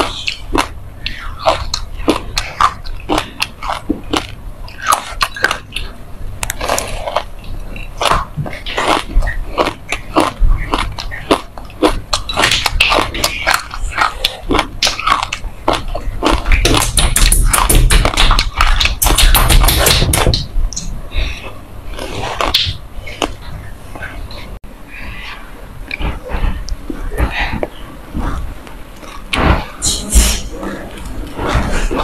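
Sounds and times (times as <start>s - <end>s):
seeds crunching between teeth: 0.0s - 20.8s.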